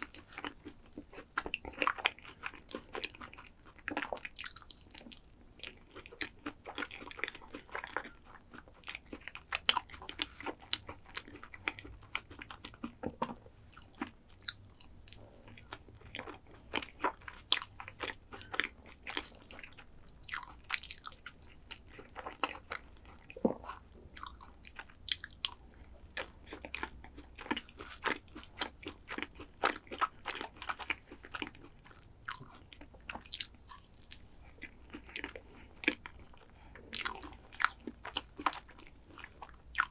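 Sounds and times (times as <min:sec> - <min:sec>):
chewing and crunching: 0:00.0 - 0:39.9.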